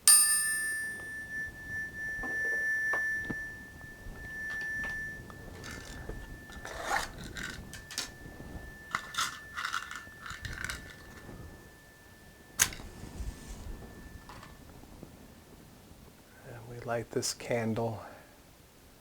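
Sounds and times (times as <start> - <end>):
chime ringing: 0.0 - 14.9
handling clicks and scrapes: 2.2 - 11.8.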